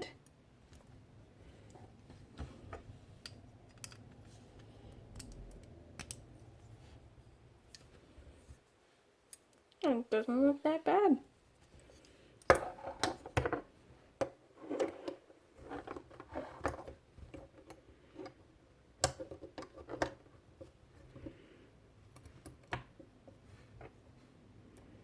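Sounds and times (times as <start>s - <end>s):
small parts clicking and rattling: 3.2s - 6.2s.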